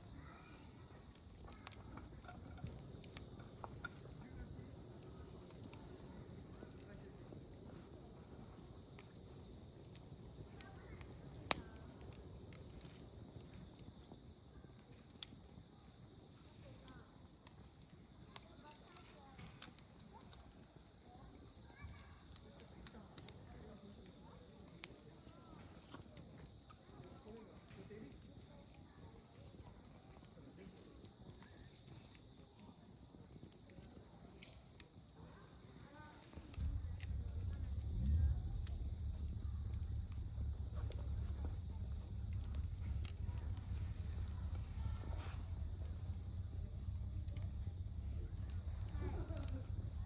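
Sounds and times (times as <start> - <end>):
campfire crackling: 0.0 - 50.0
firewood popping: 0.0 - 50.0
insects chirping: 0.0 - 50.0
faint distant voice: 18.3 - 50.0
low rumble: 36.5 - 50.0.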